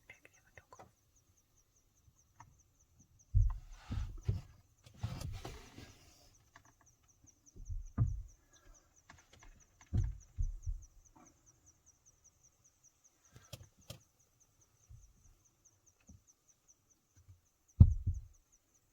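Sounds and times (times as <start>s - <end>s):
insect chirping: 0.0s - 18.9s
dull low thumps: 3.3s - 4.4s, 7.6s - 8.4s, 10.0s - 11.1s, 17.8s - 18.4s.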